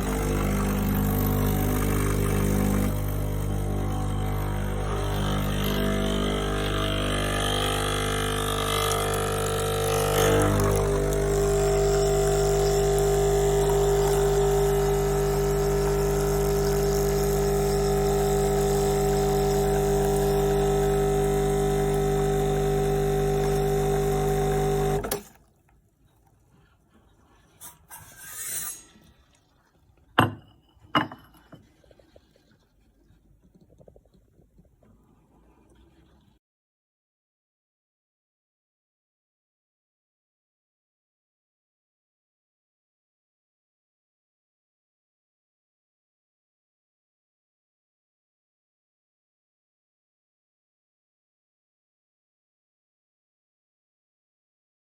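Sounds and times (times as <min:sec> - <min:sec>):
espresso machine humming: 0:00.0 - 0:25.2.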